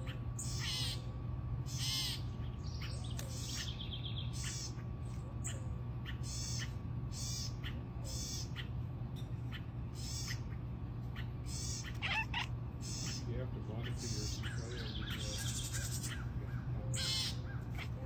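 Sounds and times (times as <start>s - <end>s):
animal high-pitched calls: 0.0s - 1.1s, 1.7s - 3.7s, 9.5s - 18.0s
steady low hum: 0.0s - 18.0s.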